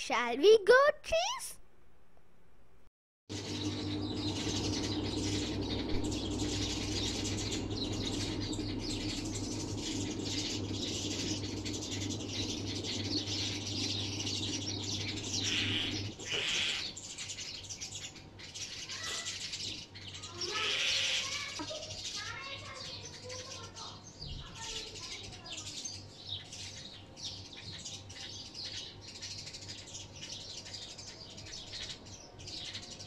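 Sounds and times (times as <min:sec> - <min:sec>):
steady low hum: 0:02.7 - 0:18.6
small birds chirping: 0:03.3 - 0:33.0.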